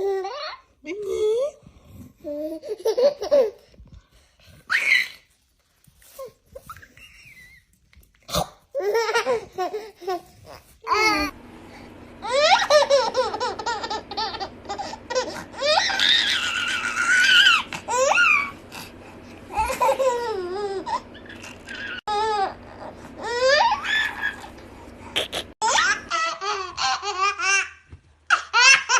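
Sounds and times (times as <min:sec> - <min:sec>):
baby laughing: 0:02.3 - 0:03.7, 0:08.7 - 0:11.3, 0:12.2 - 0:18.7, 0:19.5 - 0:28.9
baby squealing laugh: 0:12.2 - 0:18.6, 0:19.5 - 0:22.4, 0:23.2 - 0:24.5.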